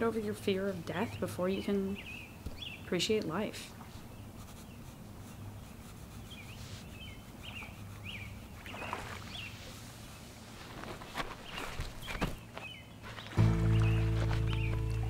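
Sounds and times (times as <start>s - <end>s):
low steady hum: 0.0s - 15.0s
bird chirps: 1.9s - 3.0s, 6.2s - 9.6s, 11.4s - 15.0s
brief rustle: 10.5s - 15.0s.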